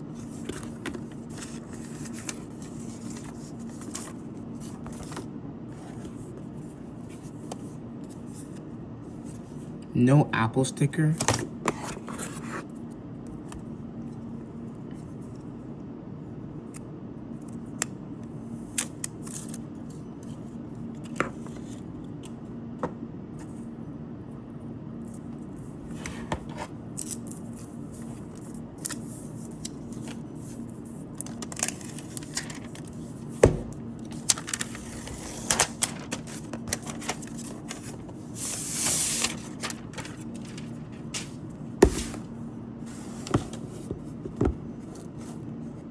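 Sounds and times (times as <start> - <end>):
steady low hum: 0.0 - 45.9
packaging rustle: 31.2 - 33.0, 34.1 - 41.4.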